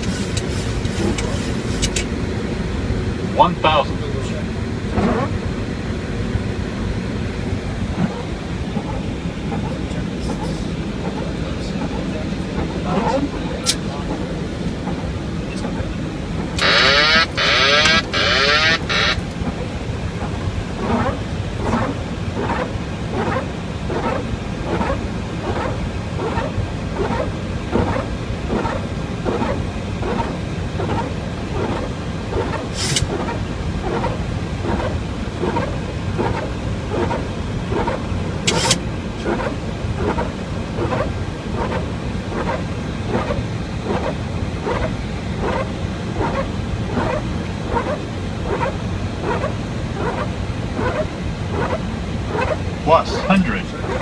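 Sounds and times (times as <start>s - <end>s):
windshield wipers sweeping: 0.0s - 2.2s, 16.4s - 54.0s
airflow and engine hum: 0.0s - 54.0s
sharp clicks: 16.6s - 19.4s, 38.5s - 38.8s.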